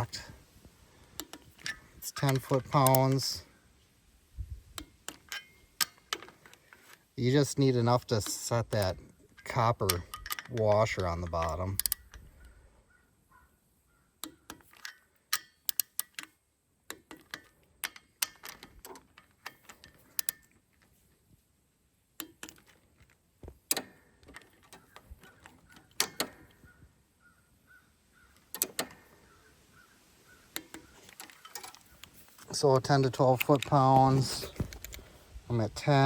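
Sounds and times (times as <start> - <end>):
metallic clicks of socket wrench: 1.2 - 3.4, 4.8 - 6.6, 8.0 - 12.5, 14.2 - 20.6.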